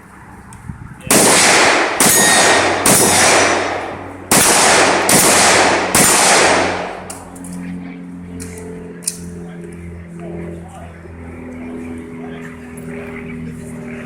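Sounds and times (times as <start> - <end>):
carbine shots echoing: 1.1 - 7.4.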